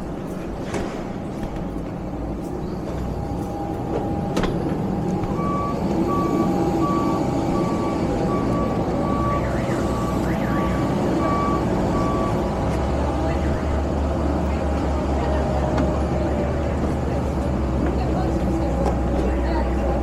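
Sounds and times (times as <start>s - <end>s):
low engine rumble: 0.0s - 20.0s
vehicle reversing beeper: 3.1s - 14.5s.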